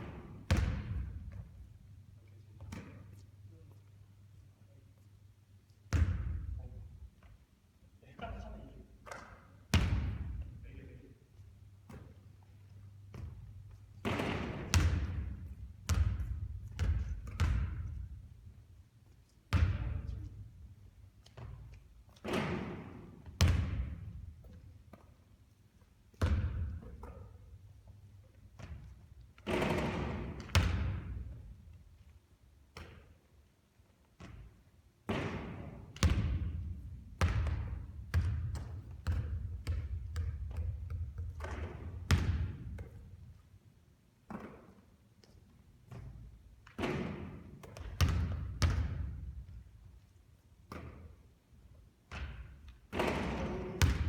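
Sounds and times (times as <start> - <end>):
basketball bouncing on court floor: 0.0 - 1.7, 2.6 - 3.2, 5.9 - 7.3, 9.0 - 10.6, 11.7 - 18.5, 19.5 - 20.5, 21.2 - 25.2, 26.1 - 31.8, 32.7 - 33.3, 34.1 - 43.4, 44.2 - 49.6, 50.6 - 51.2, 52.1 - 54.0.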